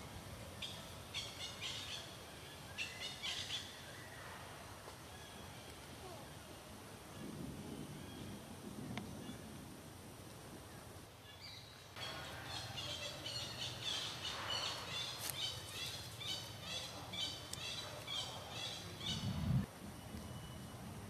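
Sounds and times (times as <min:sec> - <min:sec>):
faint outdoor background noise: 0:00.0 - 0:21.0
bird chirping: 0:11.2 - 0:20.8.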